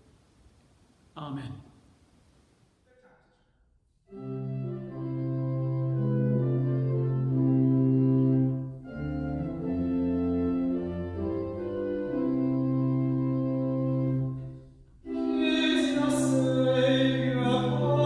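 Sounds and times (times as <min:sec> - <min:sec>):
organ playing held chords: 0:04.1 - 0:18.0.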